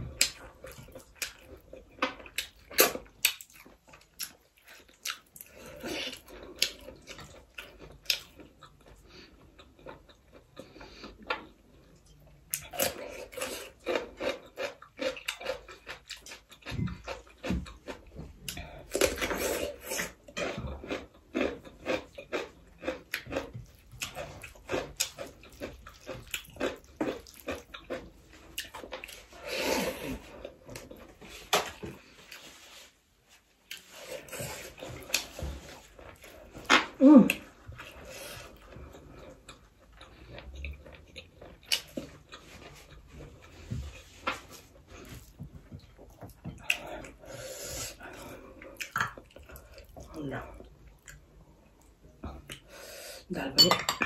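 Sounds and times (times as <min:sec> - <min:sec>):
wet chewing and lip smacks: 0:00.2 - 0:05.5.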